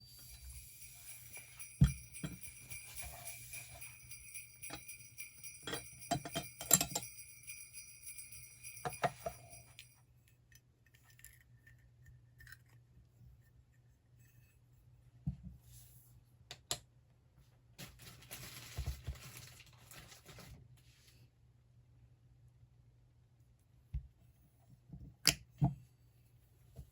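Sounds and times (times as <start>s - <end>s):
small metal chimes jangling: 0.0s - 10.0s.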